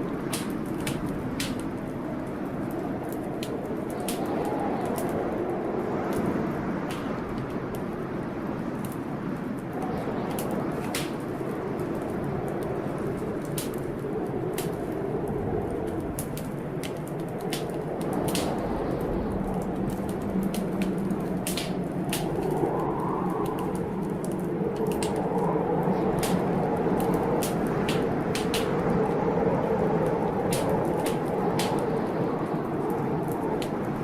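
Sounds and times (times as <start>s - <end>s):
fireplace crackling and popping: 0.0s - 34.0s
low storm rumble: 0.0s - 34.0s.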